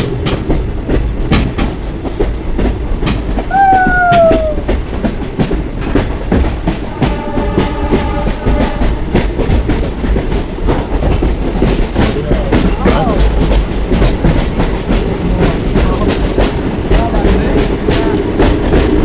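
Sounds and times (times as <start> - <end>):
train rumbling on track: 0.0 - 19.0
wheel clicks over rail joints: 9.1 - 19.0.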